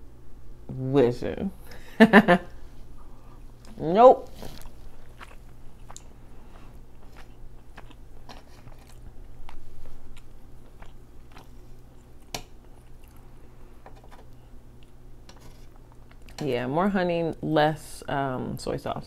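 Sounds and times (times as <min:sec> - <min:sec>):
person chewing food: 0:02.9 - 0:16.4.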